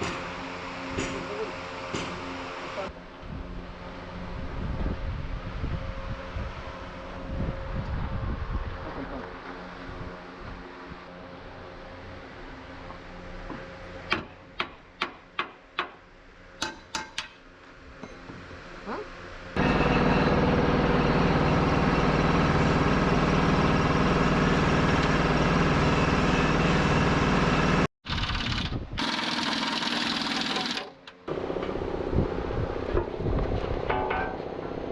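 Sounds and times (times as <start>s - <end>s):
loud steady machine noise: 19.5s - 33.1s.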